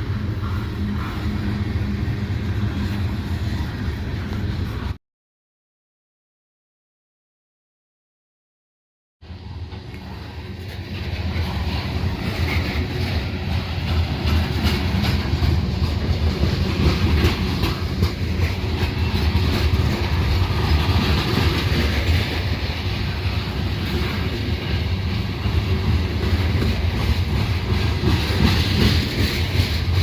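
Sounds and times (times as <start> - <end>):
clickety-clack of train wheels: 0.0 - 5.0, 9.3 - 30.0
train wheels rumbling on rails: 0.0 - 5.0, 9.2 - 30.0.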